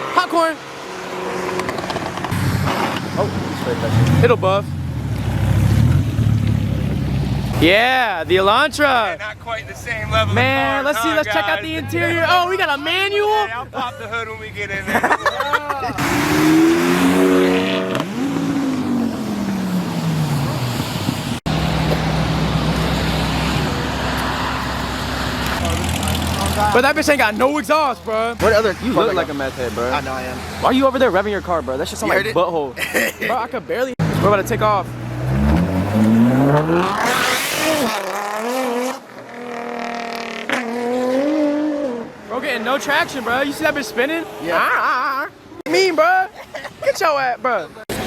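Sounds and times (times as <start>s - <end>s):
car engine revving: 0.0s - 7.8s, 16.0s - 27.2s, 34.0s - 44.4s.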